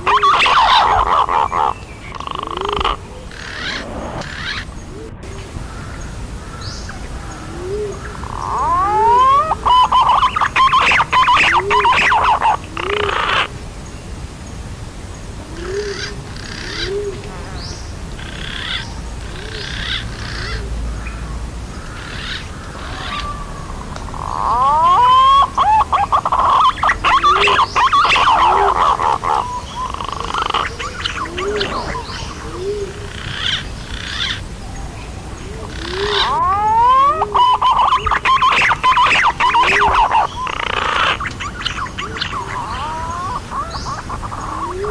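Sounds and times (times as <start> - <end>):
higher bird chirps: 0.0 - 5.1, 8.0 - 13.5, 21.8 - 34.4, 35.6 - 44.9
low rising pigeon notes: 0.0 - 13.5, 18.6 - 44.9
rapid rising whistles: 2.5 - 5.1.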